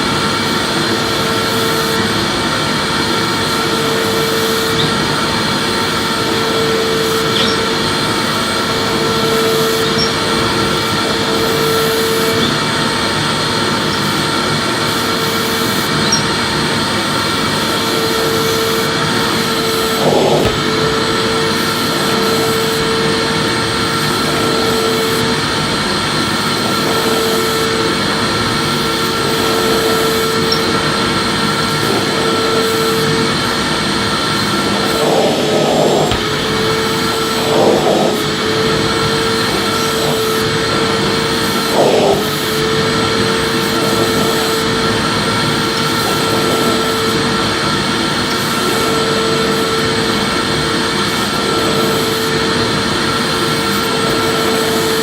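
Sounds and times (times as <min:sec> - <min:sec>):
vacuum cleaner running: 0:00.0 - 0:55.0
humming tone: 0:03.0 - 0:16.6, 0:29.0 - 0:33.4.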